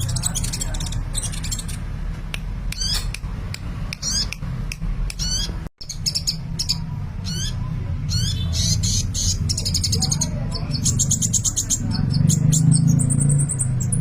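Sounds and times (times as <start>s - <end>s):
sunbird singing high chirps: 0.0s - 1.8s, 5.2s - 14.0s.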